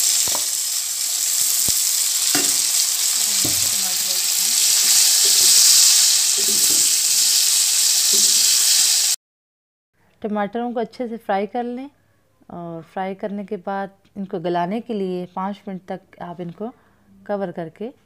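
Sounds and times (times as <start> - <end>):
vegetables sizzling in hot oil: 0.0 - 9.2
wooden spoon knocking on pan: 2.3 - 2.6, 3.4 - 3.8.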